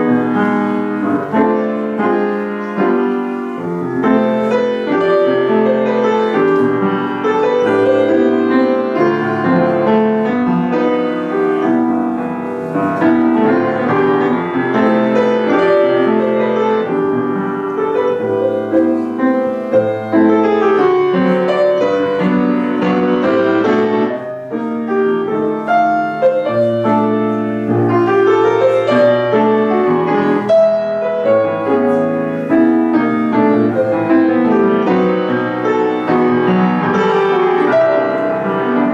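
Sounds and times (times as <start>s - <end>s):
piano piece: 0.0s - 38.9s.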